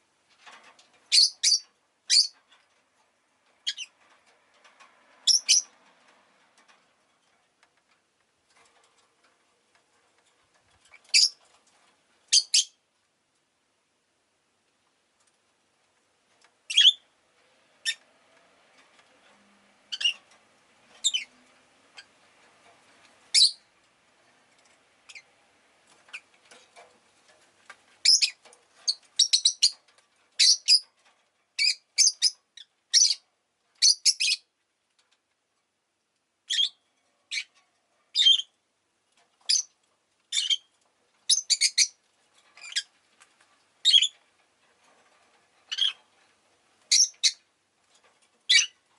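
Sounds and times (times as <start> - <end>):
lovebirds shrill chirps: 1.1 - 2.4, 3.6 - 3.9, 5.2 - 5.7, 11.0 - 11.4, 12.3 - 12.8, 16.7 - 17.0, 19.9 - 20.2, 21.0 - 21.3, 23.3 - 23.6, 28.0 - 29.8, 30.4 - 30.8, 31.6 - 33.2, 33.8 - 34.5, 36.5 - 37.5, 38.2 - 38.5, 39.5 - 39.7, 40.3 - 40.7, 41.3 - 42.0, 42.6 - 42.9, 43.8 - 44.2, 45.7 - 46.0, 46.9 - 47.4, 48.5 - 48.8.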